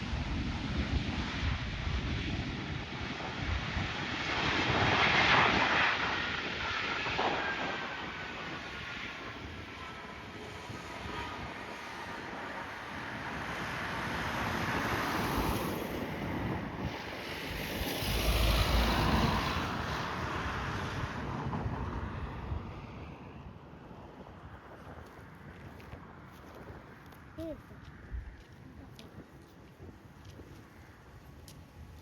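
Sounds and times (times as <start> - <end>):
jet airliner passing: 0.0 - 24.7
wind buffeting microphone: 0.0 - 32.0.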